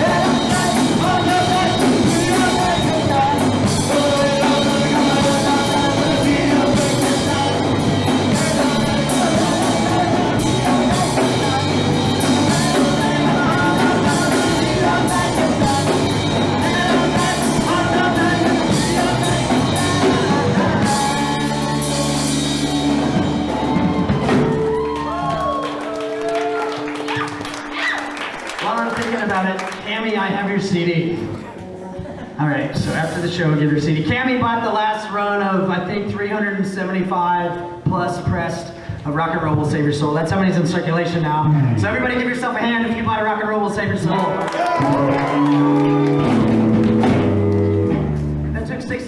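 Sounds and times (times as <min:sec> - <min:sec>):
person singing: 0:00.0 - 0:25.4, 0:44.6 - 0:48.0
rock band playing: 0:00.0 - 0:29.9, 0:43.9 - 0:48.9
drums: 0:00.0 - 0:49.0.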